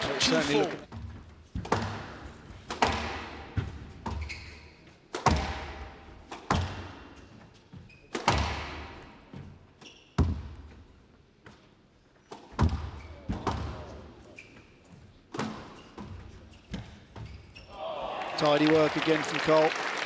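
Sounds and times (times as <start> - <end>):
squash ball hits echoing: 1.6 - 3.8, 5.1 - 7.0.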